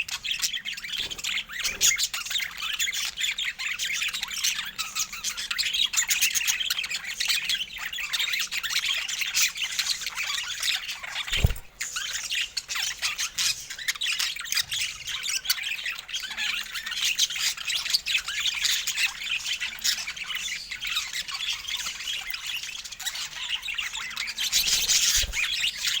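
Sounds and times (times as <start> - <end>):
budgerigars chattering: 10.6 - 26.0.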